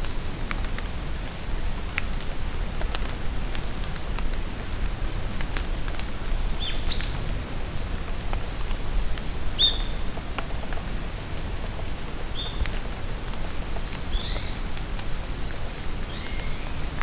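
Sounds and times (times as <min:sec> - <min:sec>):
rain falling in a forest: 0:00.0 - 0:17.0
raindrops ticking: 0:00.0 - 0:17.0
bird chirping: 0:08.5 - 0:10.0.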